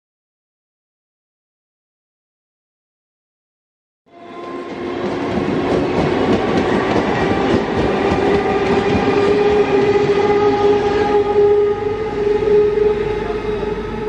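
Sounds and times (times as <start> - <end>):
locomotive droning tone: 4.1 - 14.0
train wheels rumbling on rails: 4.3 - 14.0.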